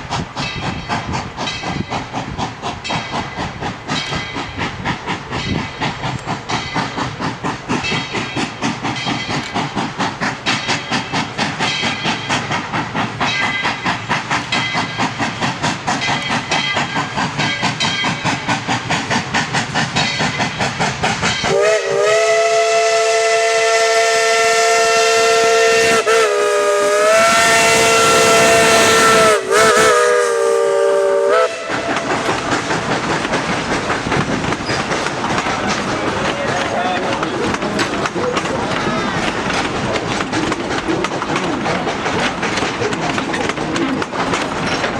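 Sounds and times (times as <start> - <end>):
steam locomotive chuffing: 0.0 - 44.9
steam whistle blast: 21.5 - 32.2.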